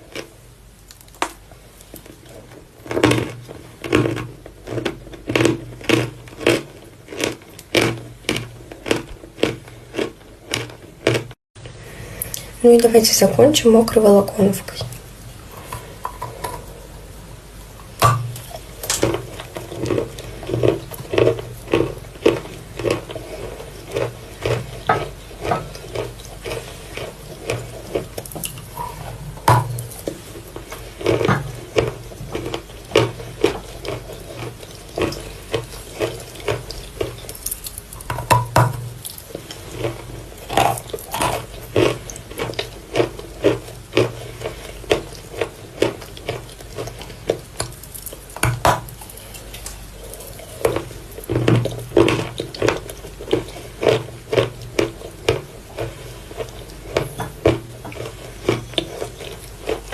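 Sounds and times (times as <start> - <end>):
chalk being chewed: 18.4 - 29.2, 29.8 - 38.1, 39.0 - 48.4, 51.9 - 59.9.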